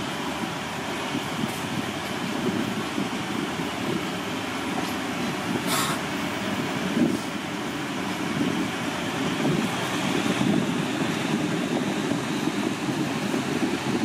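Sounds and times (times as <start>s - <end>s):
train wheels rumbling on rails: 0.0s - 14.0s
short hiss: 5.7s - 6.0s.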